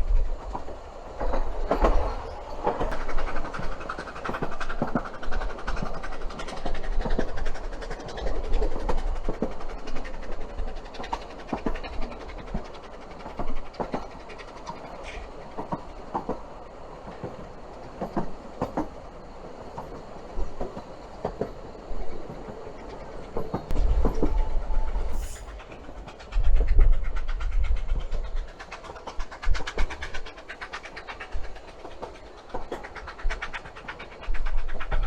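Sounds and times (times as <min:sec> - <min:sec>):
train wheels clicking on rails: 0:00.0 - 0:35.0.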